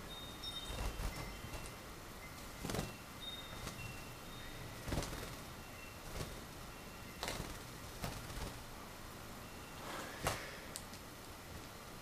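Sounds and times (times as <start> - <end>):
cage birds peeping: 0.0 - 12.0
soft knocks and wing rustles: 2.4 - 3.0, 4.8 - 5.5.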